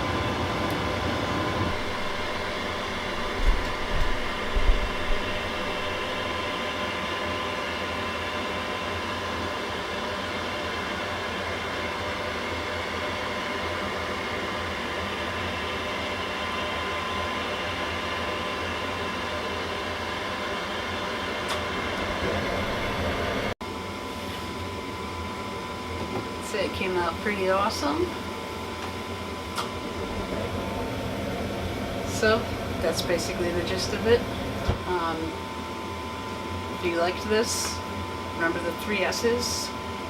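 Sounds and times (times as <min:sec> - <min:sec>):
microwave oven hum: 0:00.0 - 0:40.0
low bumps: 0:01.7 - 0:06.6.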